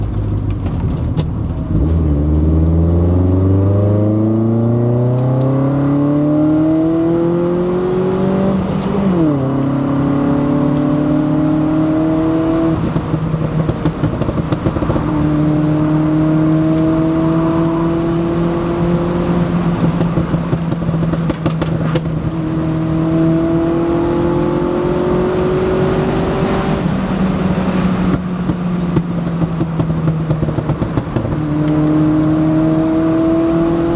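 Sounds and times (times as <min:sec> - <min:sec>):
car engine accelerating: 0:00.0 - 0:33.9
exhaust cracks: 0:12.7 - 0:15.6, 0:19.5 - 0:22.4.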